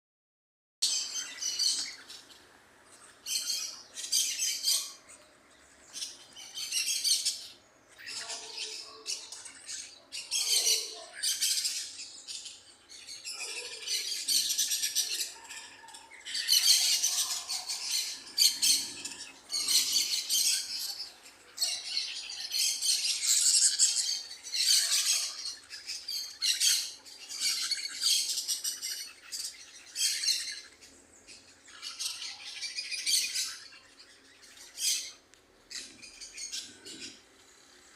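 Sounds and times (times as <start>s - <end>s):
parrot squawking: 8.1s - 11.9s, 16.3s - 30.7s.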